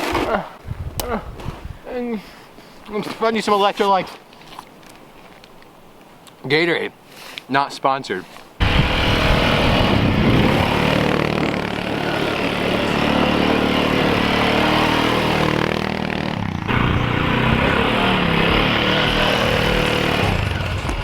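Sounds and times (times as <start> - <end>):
motor engine running: 8.6 - 21.0.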